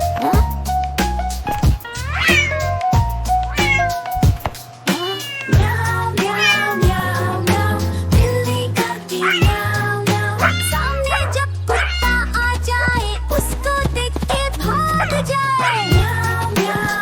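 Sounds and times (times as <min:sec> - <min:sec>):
children's song backing track: 0:00.0 - 0:17.0
cat meowing: 0:01.9 - 0:02.6, 0:03.5 - 0:04.0, 0:05.0 - 0:07.0, 0:09.2 - 0:09.6, 0:10.4 - 0:12.1.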